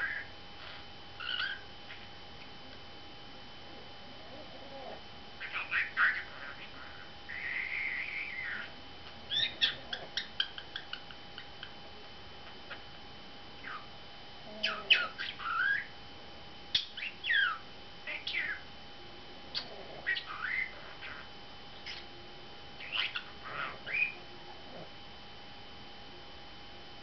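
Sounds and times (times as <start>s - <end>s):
budgerigar chattering: 0.0s - 2.1s, 5.4s - 8.7s, 9.3s - 11.7s, 22.8s - 24.2s.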